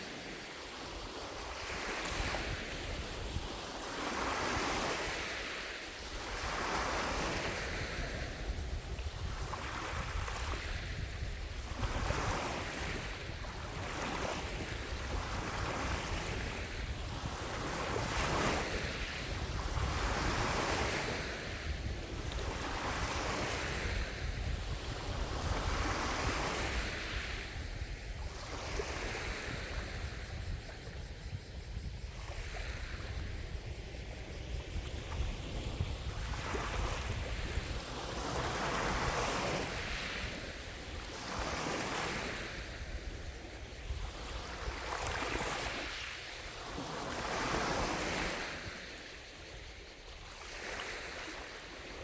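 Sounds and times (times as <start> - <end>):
waves lapping against shore: 0.0 - 52.0
wind on microphone: 0.0 - 52.0.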